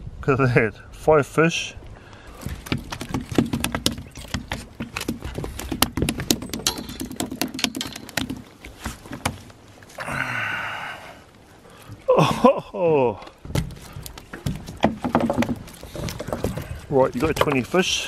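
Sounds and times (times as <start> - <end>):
fish flapping on wooden deck: 2.3 - 9.8, 13.4 - 17.8.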